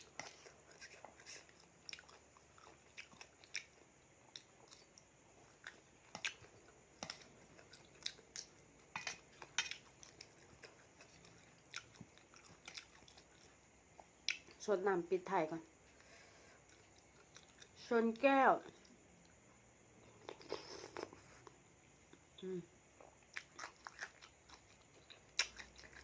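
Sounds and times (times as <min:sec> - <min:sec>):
person chewing food: 0:00.0 - 0:14.6, 0:15.8 - 0:17.8, 0:18.6 - 0:22.3, 0:22.9 - 0:26.0.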